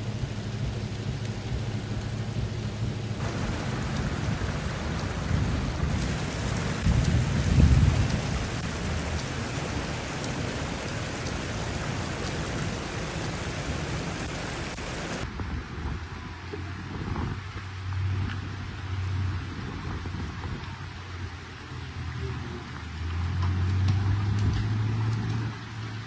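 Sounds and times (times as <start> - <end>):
low rumble: 0.0 - 20.3
heavy rain: 0.0 - 26.0
rushing floodwater: 0.0 - 26.0.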